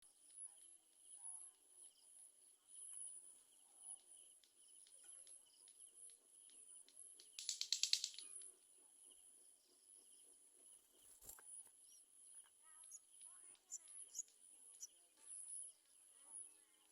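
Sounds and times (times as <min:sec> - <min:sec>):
rapid sharp ticks: 0:04.4 - 0:08.5
insect chirring: 0:06.9 - 0:08.5, 0:12.8 - 0:14.9.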